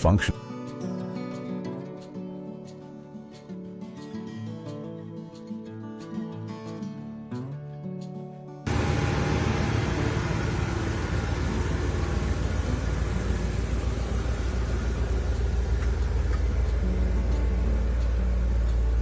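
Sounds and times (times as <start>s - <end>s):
car engine idling: 8.7s - 19.0s.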